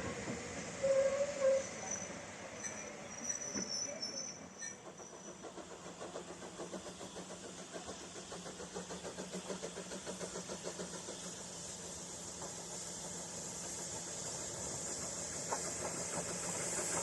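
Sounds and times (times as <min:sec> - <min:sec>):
locomotive running with fast beat: 0:05.0 - 0:12.6.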